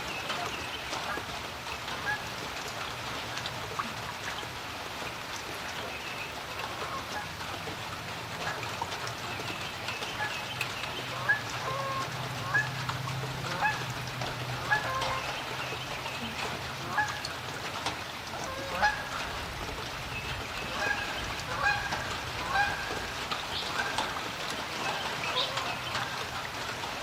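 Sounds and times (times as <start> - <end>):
rain falling on a creek: 0.0 - 27.0.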